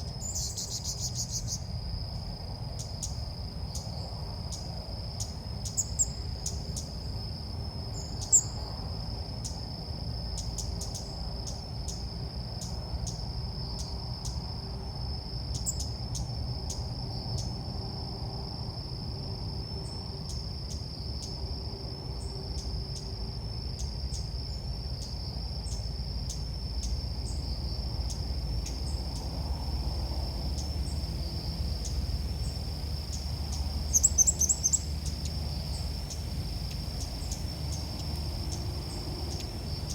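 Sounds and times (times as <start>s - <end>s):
high-pitched insect drone: 19.8s - 39.9s.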